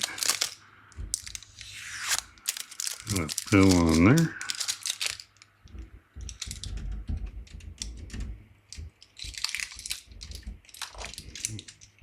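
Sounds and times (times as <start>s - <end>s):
clicks and taps of parts: 4.6s - 12.0s.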